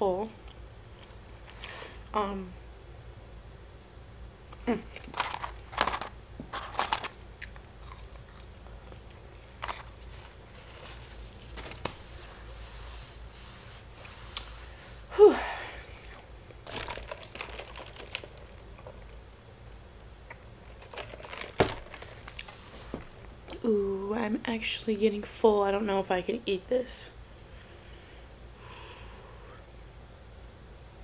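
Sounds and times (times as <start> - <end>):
chewing with wet smacks: 7.4 - 10.0.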